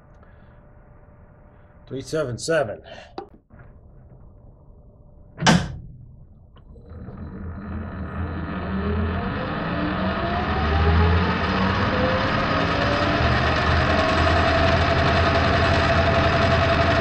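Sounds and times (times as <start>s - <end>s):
sharp clunk: 5.4s - 6.2s
metal lathe motor whining: 6.7s - 17.0s.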